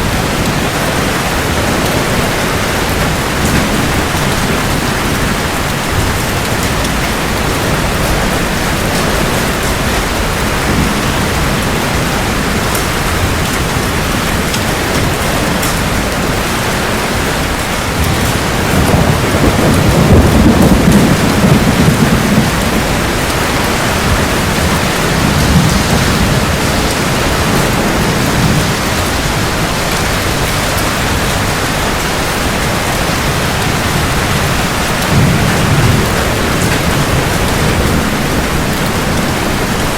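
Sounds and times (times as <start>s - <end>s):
heavy rain: 0.0s - 39.9s
rumbling thunder: 0.0s - 39.9s.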